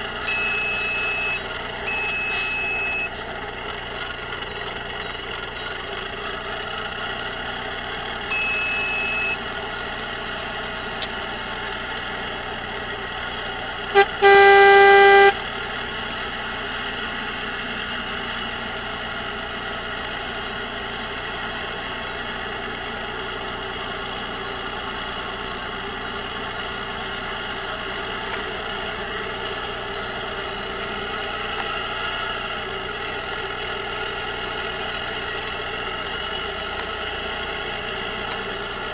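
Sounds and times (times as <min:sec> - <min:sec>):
diesel truck engine running: 0:00.0 - 0:38.9
high beep: 0:00.2 - 0:03.1, 0:08.3 - 0:09.4, 0:14.0 - 0:15.4
truck horn toot: 0:00.2 - 0:03.2, 0:08.3 - 0:09.4, 0:13.9 - 0:15.4
air horn blast: 0:13.9 - 0:15.4.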